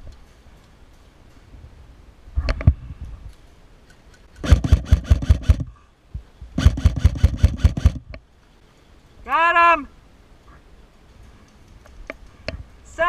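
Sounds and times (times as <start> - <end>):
airsoft rifle firing: 4.4 - 5.7, 6.6 - 8.1.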